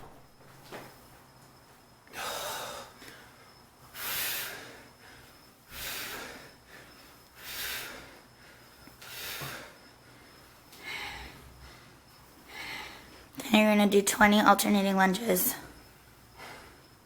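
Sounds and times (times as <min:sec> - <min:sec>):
man breathing hard: 0:02.1 - 0:13.4, 0:16.2 - 0:17.0.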